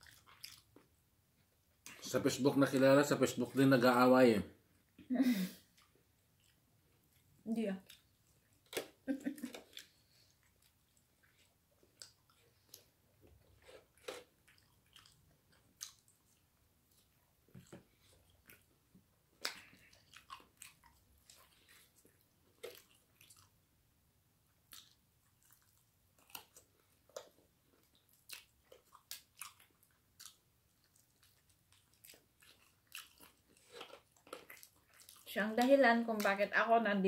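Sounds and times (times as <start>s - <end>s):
faint chewing and crunching: 0.0s - 3.6s, 4.6s - 36.5s.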